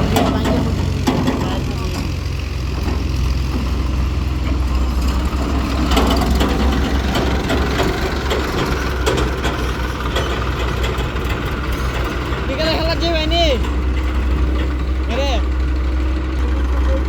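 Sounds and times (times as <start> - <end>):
light metallic clanks and rattles: 0.0 - 16.7
diesel engine running: 0.0 - 17.0.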